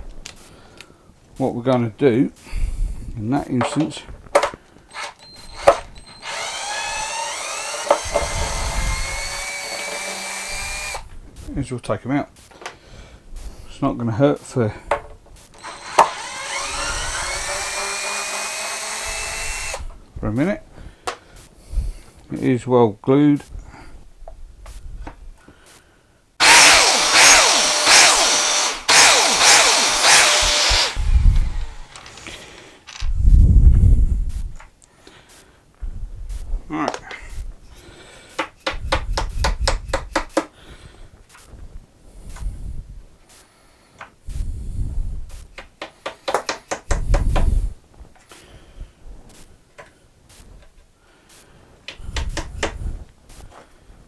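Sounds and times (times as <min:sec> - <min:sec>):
handheld power tool running: 0:04.9 - 0:11.5, 0:15.4 - 0:20.0, 0:26.4 - 0:33.0
heavy low thumps: 0:30.2 - 0:31.8, 0:33.1 - 0:34.6, 0:35.8 - 0:37.7, 0:44.3 - 0:45.5
wooden pieces clicking and knocking: 0:31.9 - 0:33.1, 0:45.6 - 0:47.5.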